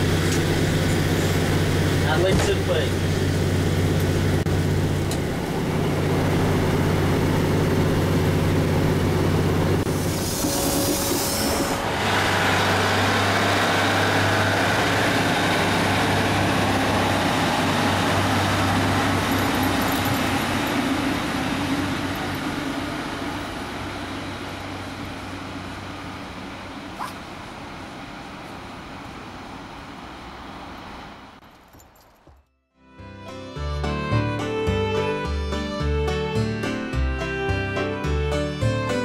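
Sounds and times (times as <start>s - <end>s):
diesel train engine drone: 0.0s - 31.7s
rail noise: 0.0s - 32.4s.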